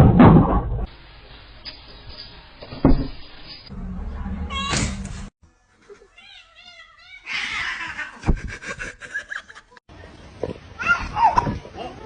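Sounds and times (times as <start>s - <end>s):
cat yowling: 6.2s - 8.2s
cats screeching scuffle: 6.2s - 8.2s.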